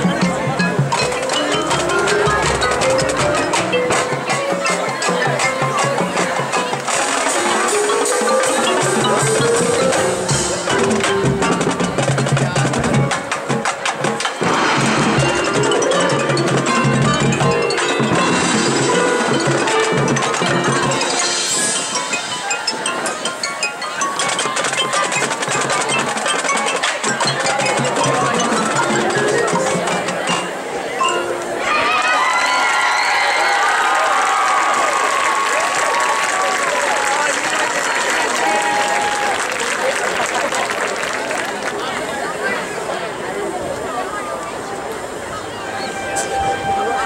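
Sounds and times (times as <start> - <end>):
marching band playing: 0.0 - 32.6, 45.6 - 47.0
rapid percussion strikes: 0.0 - 43.0.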